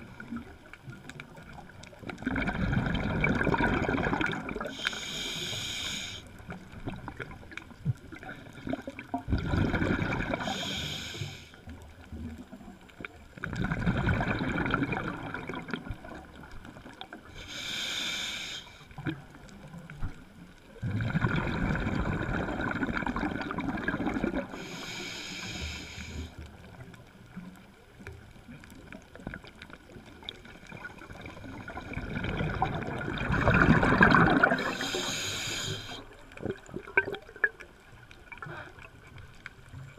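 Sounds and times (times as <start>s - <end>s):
bubbling exhalation underwater: 2.2s - 4.8s, 8.6s - 10.6s, 13.4s - 16.3s, 20.8s - 24.5s, 30.7s - 35.0s
regulator hissing inhalation: 4.8s - 6.3s, 10.4s - 11.6s, 17.4s - 18.9s, 24.5s - 26.4s, 34.6s - 36.1s.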